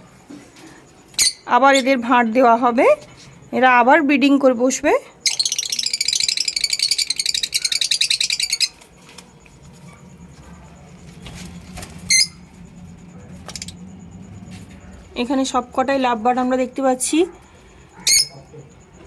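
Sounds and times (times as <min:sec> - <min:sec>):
lovebirds chattering: 0:05.2 - 0:19.0.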